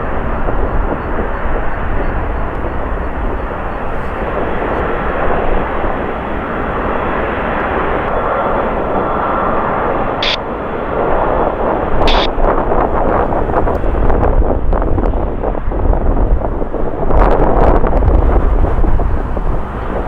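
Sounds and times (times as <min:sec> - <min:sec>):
faint whine: 0:00.0 - 0:13.9
jet engines roaring: 0:00.0 - 0:20.0.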